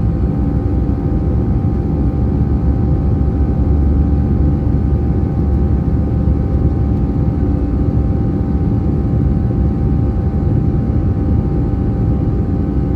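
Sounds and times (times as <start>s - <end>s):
jet engines in cabin: 0.0s - 12.9s.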